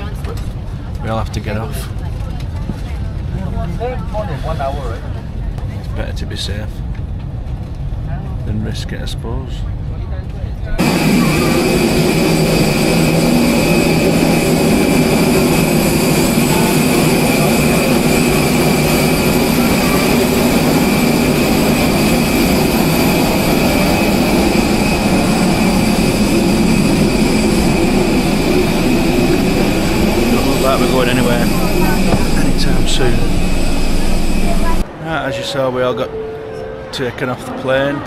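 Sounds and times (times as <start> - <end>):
jet turbine roaring: 10.8 - 35.0
high turbine whine: 10.8 - 37.5.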